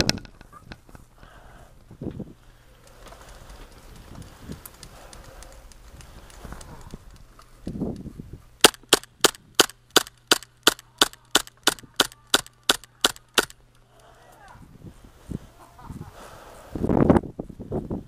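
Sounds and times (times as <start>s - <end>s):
airsoft gun shots: 8.6s - 13.6s.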